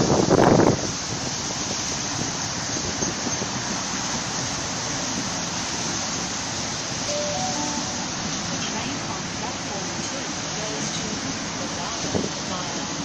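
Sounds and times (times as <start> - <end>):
train wheels rumbling on track: 0.0 - 7.1.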